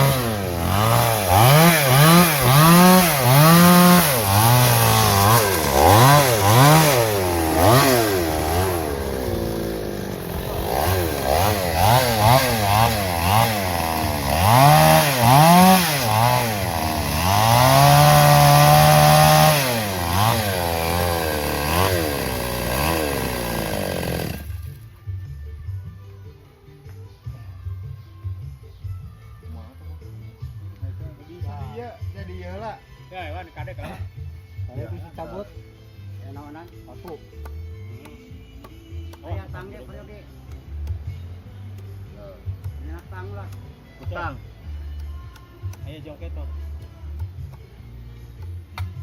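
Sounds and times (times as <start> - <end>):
chainsaw cutting through log: 0.0 - 24.9.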